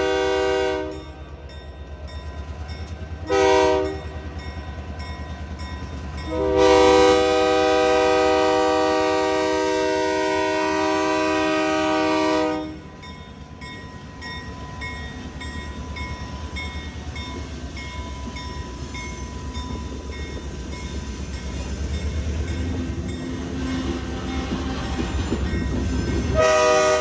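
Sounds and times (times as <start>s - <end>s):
freight train horn: 0.0s - 1.2s, 3.2s - 4.3s, 6.2s - 13.1s, 26.3s - 27.0s
diesel locomotive rumble: 0.0s - 27.0s
railroad crossing bell dinging: 0.8s - 8.8s, 11.4s - 27.0s.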